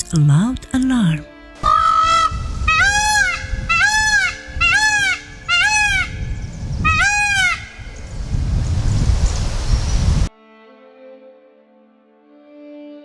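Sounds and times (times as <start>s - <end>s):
peacock calling: 1.6s - 7.9s.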